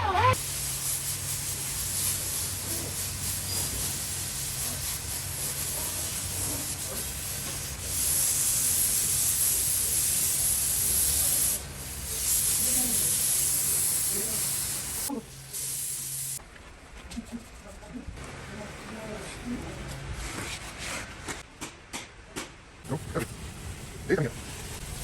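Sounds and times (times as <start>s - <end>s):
air spray gun hissing: 0.3s - 16.4s.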